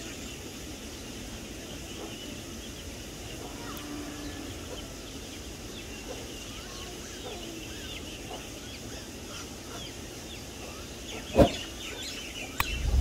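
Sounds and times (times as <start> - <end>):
faint click: 12.6 - 12.8.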